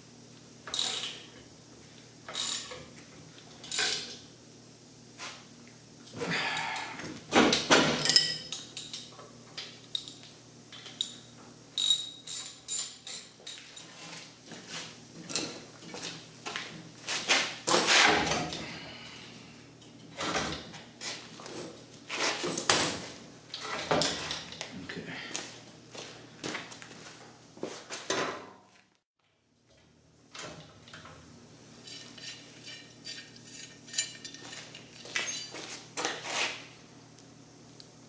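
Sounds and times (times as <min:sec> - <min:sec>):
metal tools clanking: 0:00.7 - 0:01.3, 0:31.8 - 0:35.7.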